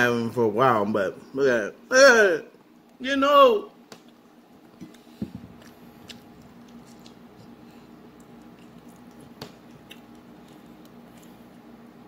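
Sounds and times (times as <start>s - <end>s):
taco being bitten and chewed: 4.0s - 12.0s.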